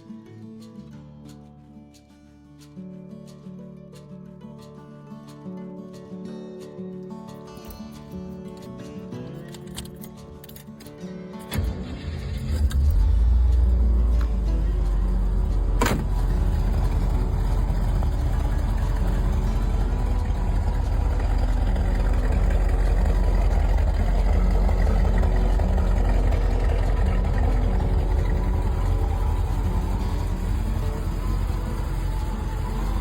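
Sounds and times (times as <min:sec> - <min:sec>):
car engine rumbling: 0:11.5 - 0:33.0.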